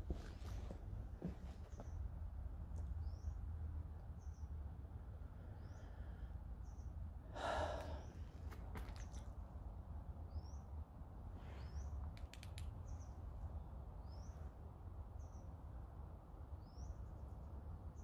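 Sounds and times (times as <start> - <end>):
quick clicks: 12.1 - 12.8.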